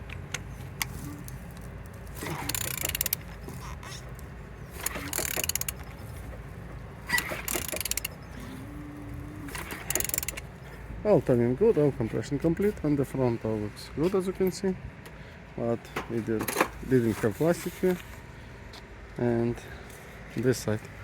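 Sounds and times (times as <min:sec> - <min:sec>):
engine turning ratcheting scrape: 0:00.0 - 0:10.9, 0:16.3 - 0:18.3
sharp clicks: 0:02.2 - 0:03.5, 0:04.8 - 0:06.1, 0:07.1 - 0:08.3, 0:09.5 - 0:10.5.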